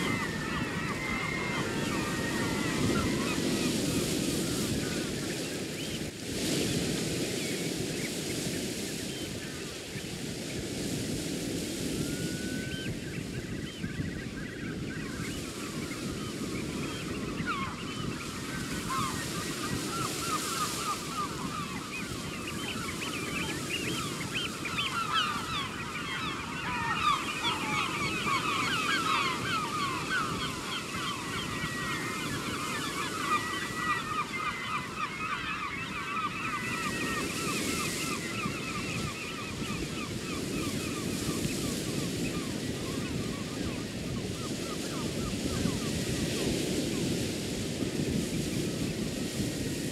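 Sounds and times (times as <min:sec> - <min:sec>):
flock of birds calling: 0:00.0 - 0:49.8
surf washing on shore: 0:00.0 - 0:49.9.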